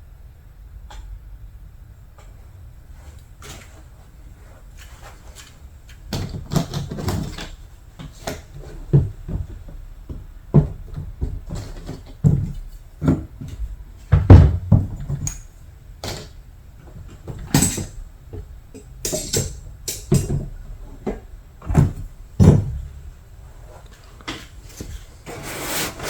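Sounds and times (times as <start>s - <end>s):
hand tool scraping paint: 25.2s - 26.0s.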